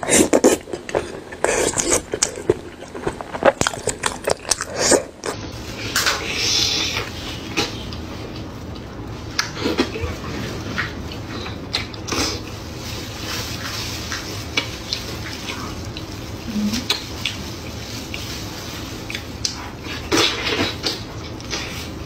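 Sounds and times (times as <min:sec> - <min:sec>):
wet chewing and lip-smacking: 0:00.0 - 0:10.0, 0:10.8 - 0:12.6, 0:14.1 - 0:16.3, 0:19.0 - 0:21.8
low steady hum: 0:00.0 - 0:22.0.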